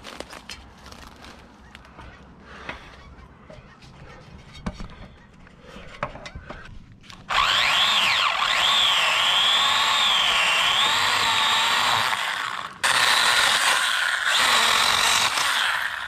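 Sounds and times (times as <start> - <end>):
power saw whining: 7.3 - 16.0.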